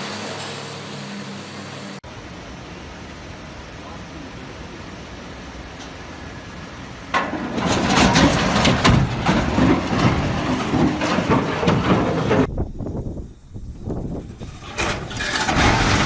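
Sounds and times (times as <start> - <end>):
heavy machinery rumble: 0.0 - 16.0
machinery clattering and crunching: 7.1 - 12.5, 14.1 - 16.0.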